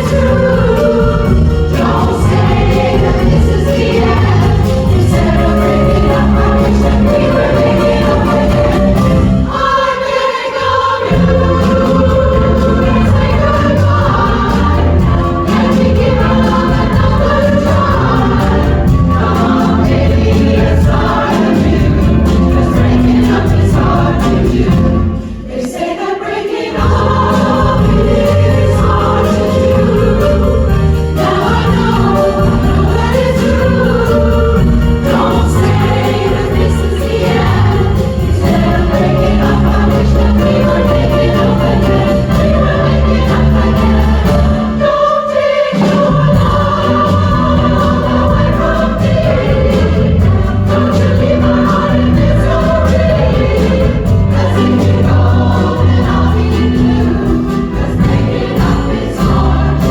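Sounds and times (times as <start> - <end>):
instrumental accompaniment with bass beat: 0.0 - 9.7, 26.8 - 45.0
women's chorus singing pop song: 0.0 - 59.9.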